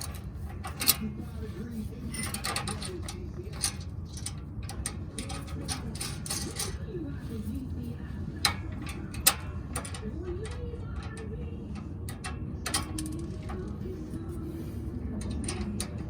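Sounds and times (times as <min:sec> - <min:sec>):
metallic clicks of hand tools: 0:00.0 - 0:01.1, 0:02.1 - 0:06.8, 0:08.4 - 0:14.3, 0:15.2 - 0:16.0
steady low rumble: 0:00.0 - 0:16.0.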